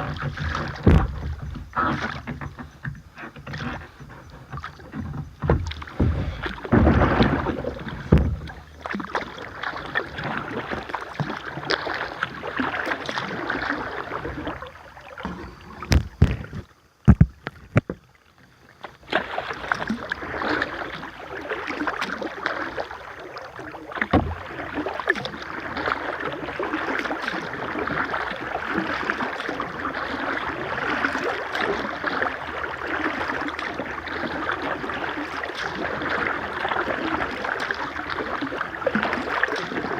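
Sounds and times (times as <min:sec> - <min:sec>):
water splashing: 0:00.0 - 0:39.9
sharp knocks: 0:00.4 - 0:01.6.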